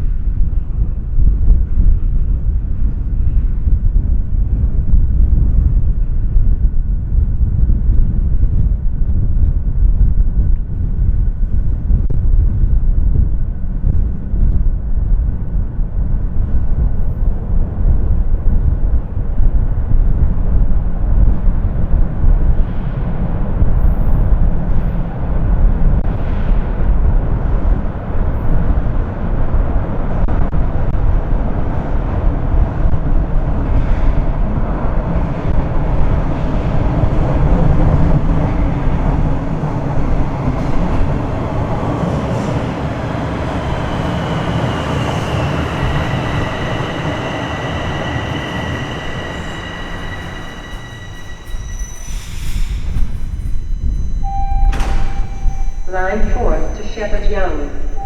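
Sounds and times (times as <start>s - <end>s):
subway train rumbling: 0.0s - 58.0s
train wheel noise: 33.0s - 58.0s.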